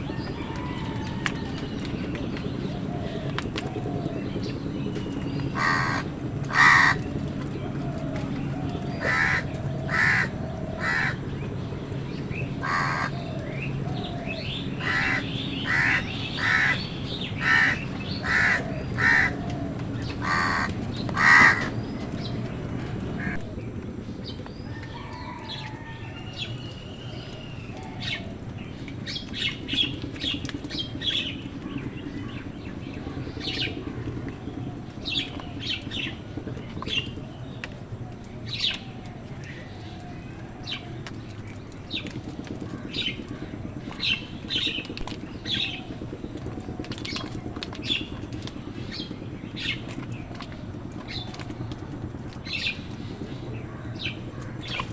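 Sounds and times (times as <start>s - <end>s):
crows cawing: 5.6s - 7.1s, 8.9s - 11.3s, 12.6s - 22.0s, 23.2s - 23.5s.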